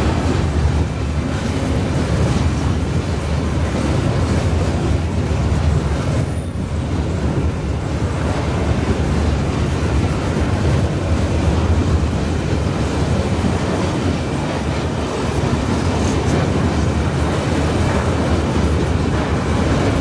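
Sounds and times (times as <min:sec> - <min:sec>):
train wheels rumbling on rails: 0:00.0 - 0:20.0
faint high wheel squeals: 0:05.9 - 0:08.1.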